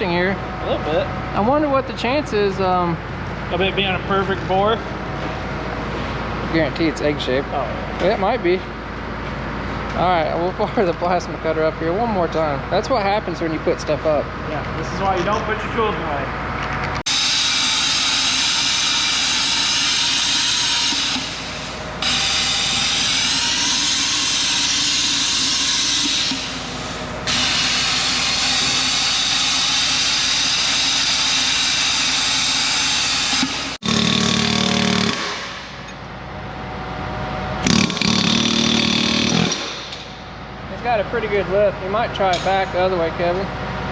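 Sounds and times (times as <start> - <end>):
plasma cutter hissing: 17.1 - 33.6.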